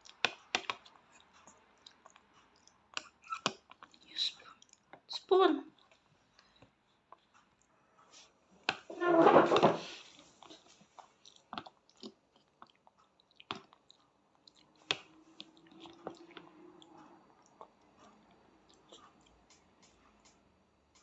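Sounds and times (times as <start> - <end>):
child chewing pasta: 0.0 - 9.0, 9.8 - 21.0.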